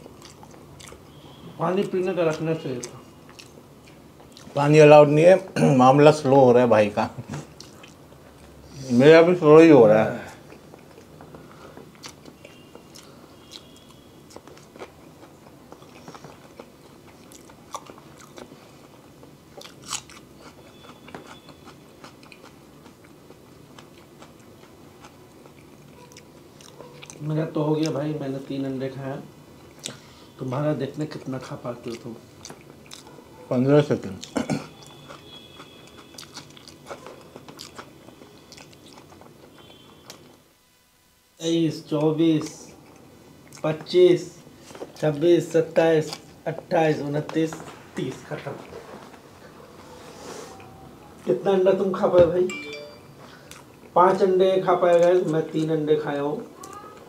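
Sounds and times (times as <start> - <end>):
person chewing food: 0.0 - 1.3, 2.3 - 4.6, 7.5 - 8.6, 10.4 - 27.3, 29.7 - 30.0, 31.9 - 33.4, 34.2 - 40.4, 46.1 - 46.4, 52.8 - 54.0.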